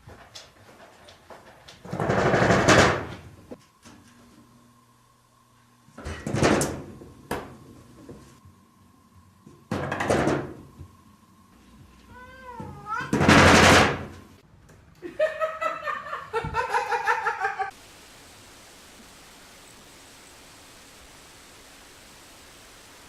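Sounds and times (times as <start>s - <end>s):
cat meowing: 12.1s - 13.2s.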